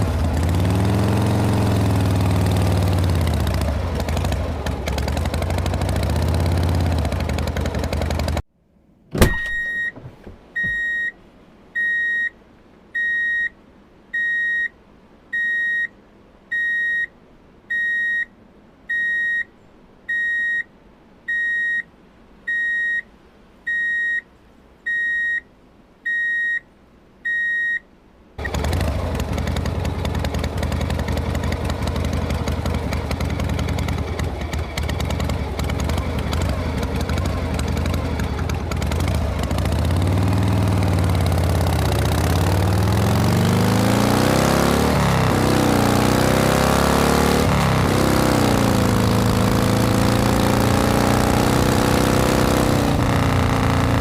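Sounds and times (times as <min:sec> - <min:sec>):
loud engine running: 0:00.0 - 0:08.4, 0:28.4 - 0:54.0
high electronic beeps: 0:09.3 - 0:10.0, 0:10.6 - 0:11.1, 0:18.9 - 0:19.5.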